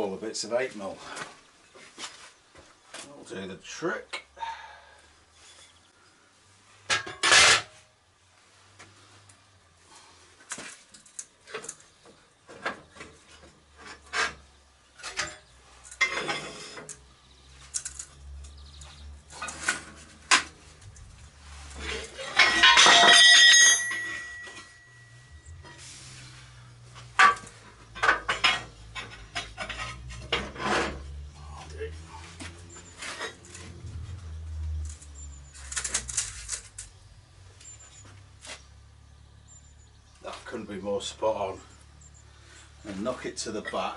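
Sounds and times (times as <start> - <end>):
scraping clatter: 6.9 - 7.8, 12.5 - 17.0, 18.8 - 31.3
metal pieces and tools clinking: 17.6 - 18.6, 21.7 - 25.8, 34.8 - 38.1
low hum: 23.8 - 38.4.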